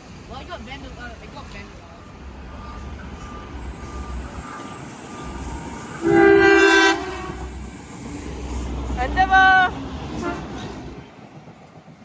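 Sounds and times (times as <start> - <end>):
low rumble of train: 0.0 - 12.0
train horn blast: 5.9 - 7.5, 10.2 - 10.6.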